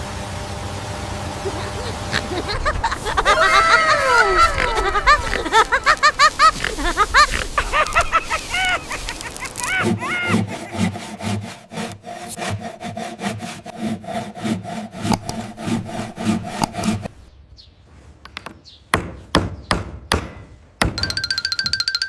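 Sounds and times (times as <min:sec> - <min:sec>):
rhythmic scraping strokes: 0:01.2 - 0:17.2.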